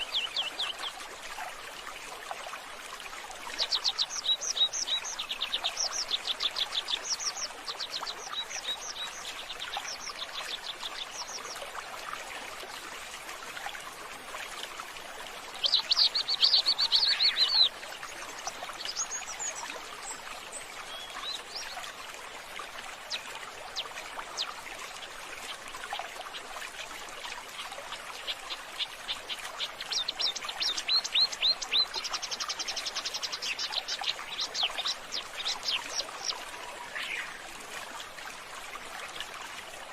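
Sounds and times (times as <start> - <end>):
birds chirping: 15.6 - 19.6, 28.2 - 37.4.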